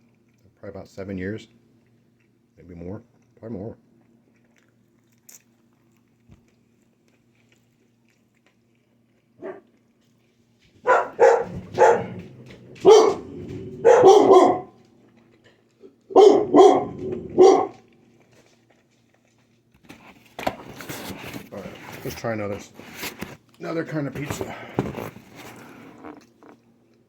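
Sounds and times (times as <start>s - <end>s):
dog barking: 9.4s - 9.7s, 10.8s - 14.8s, 16.1s - 17.9s.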